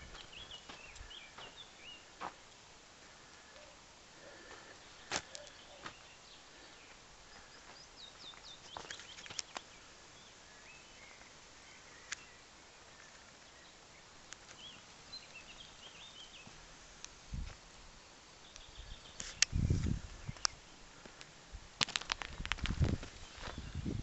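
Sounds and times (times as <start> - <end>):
small birds chirping: 0.0 - 17.2, 18.2 - 24.0.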